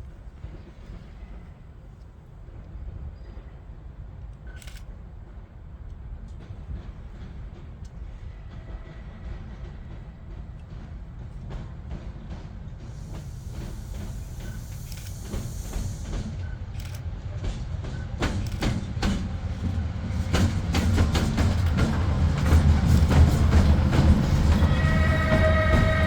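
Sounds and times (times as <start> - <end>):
train rumble: 0.0 - 26.0
train wheel clicks over rail joints: 12.9 - 17.1, 17.9 - 26.0.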